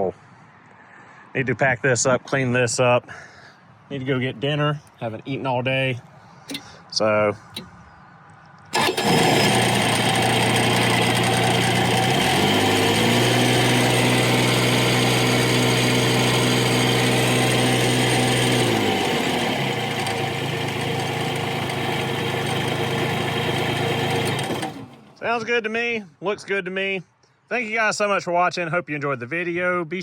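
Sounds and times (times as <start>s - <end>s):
loader engine idling and revving: 8.7s - 25.2s.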